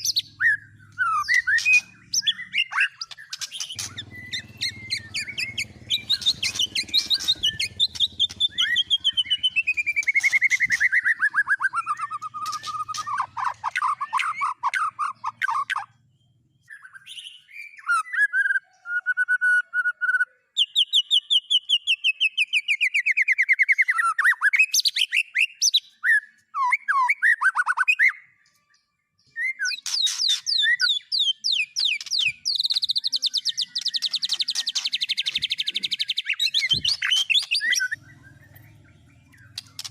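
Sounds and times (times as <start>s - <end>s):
songbird trilling: 0.0s - 16.0s, 29.2s - 39.9s.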